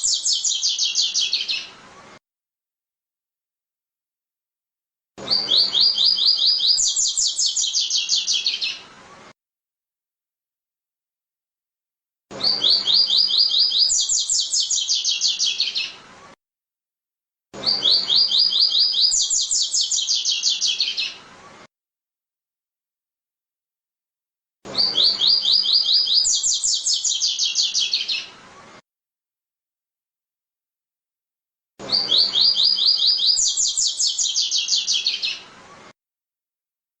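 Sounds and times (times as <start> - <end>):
small bird singing high notes: 0.0 - 1.7, 5.3 - 8.8, 12.4 - 16.0, 17.6 - 21.2, 24.7 - 28.3, 31.9 - 35.5.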